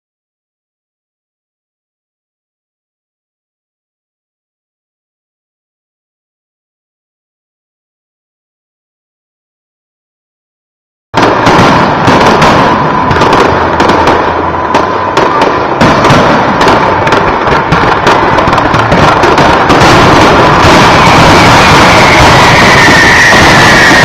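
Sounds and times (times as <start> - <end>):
fireworks bangs and crackles: 11.2 - 24.0.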